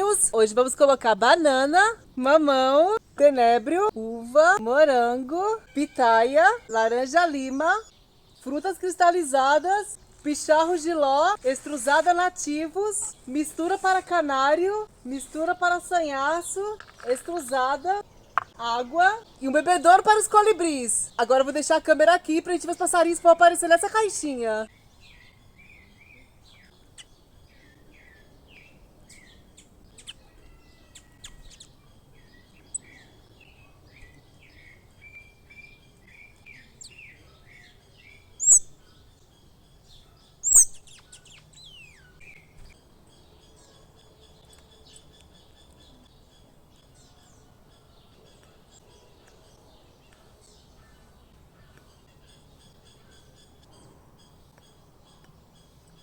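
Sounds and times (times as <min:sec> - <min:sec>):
songbirds chirping and trilling: 0:00.0 - 0:56.0
sharp high-pitched bird calls: 0:29.1 - 0:47.3.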